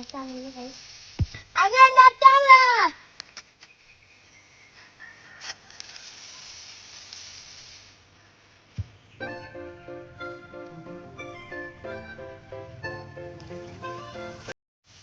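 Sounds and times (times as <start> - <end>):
faint hiss: 0.0 - 11.3, 12.2 - 15.0
short knock: 8.8 - 9.0
background music: 9.2 - 14.6.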